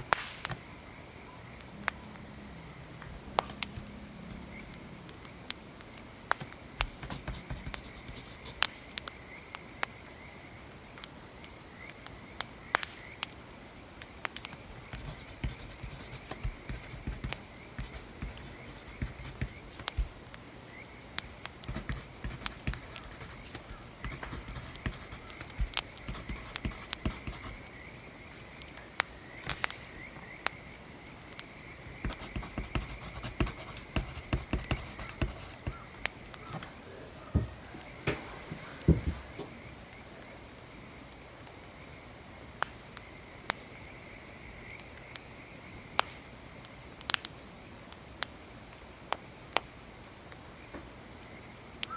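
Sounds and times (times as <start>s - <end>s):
crackling fire with pops: 0.0s - 1.0s, 8.6s - 10.2s, 11.0s - 15.0s, 28.5s - 32.1s, 45.9s - 51.0s
pen scratching on paper: 6.8s - 8.7s, 15.0s - 20.2s, 21.2s - 27.6s, 31.9s - 35.9s.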